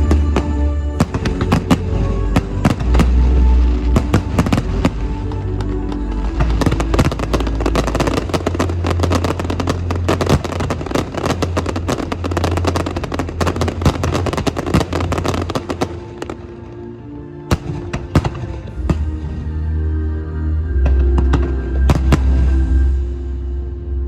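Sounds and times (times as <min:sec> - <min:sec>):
music with steady bass: 0:00.0 - 0:24.0
fireworks crackling and popping: 0:01.0 - 0:16.4.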